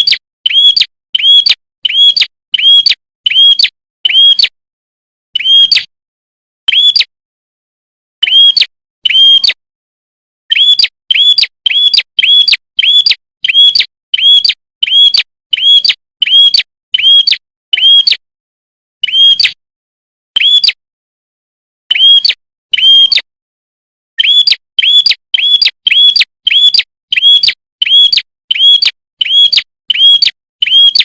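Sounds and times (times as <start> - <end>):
songbird chirping: 10.5 - 18.2, 20.4 - 20.8.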